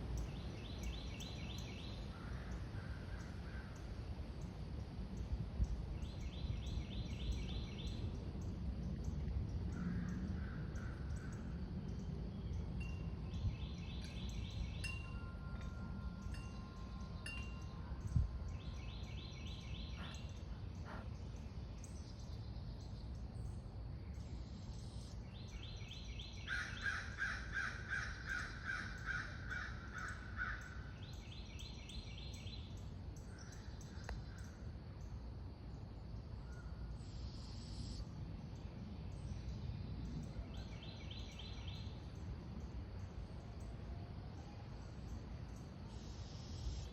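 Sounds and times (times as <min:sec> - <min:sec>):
steady low rumble: 0:02.5 - 0:25.5
birds calling: 0:16.2 - 0:22.0.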